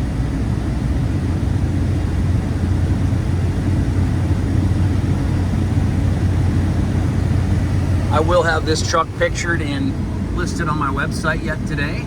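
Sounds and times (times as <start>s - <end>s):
pickup engine droning: 0.0s - 12.0s
tyre and road noise: 4.1s - 12.0s.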